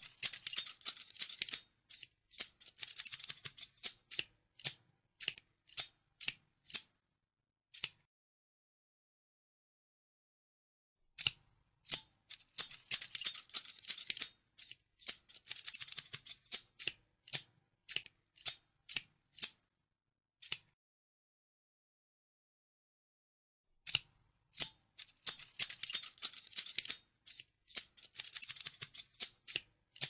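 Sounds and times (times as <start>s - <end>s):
scissors snipping: 0.0s - 6.9s, 7.7s - 8.1s, 11.2s - 19.6s, 20.4s - 20.8s, 23.8s - 30.0s.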